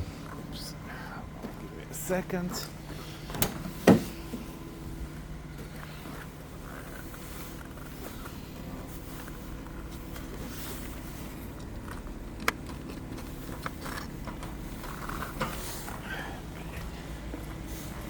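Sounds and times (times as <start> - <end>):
steady low hum: 0.0 - 18.0
car hood latch clicking: 3.3 - 4.1.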